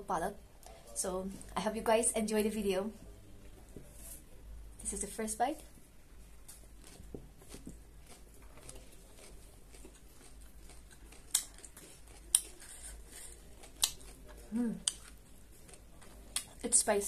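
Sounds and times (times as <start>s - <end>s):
crunchy chewing: 6.4s - 16.8s.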